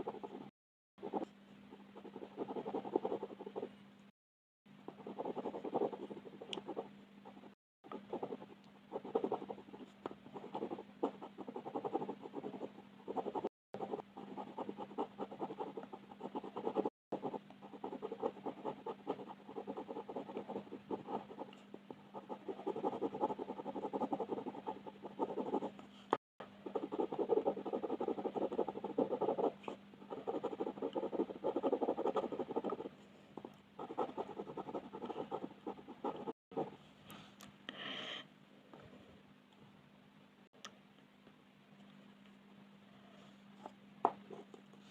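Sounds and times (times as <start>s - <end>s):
faint steady hum: 0.0s - 44.9s.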